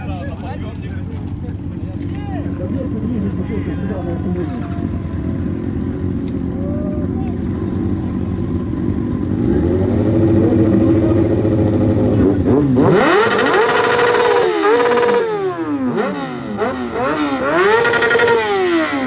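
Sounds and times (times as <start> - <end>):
motorcycle engine revving: 7.3 - 19.0.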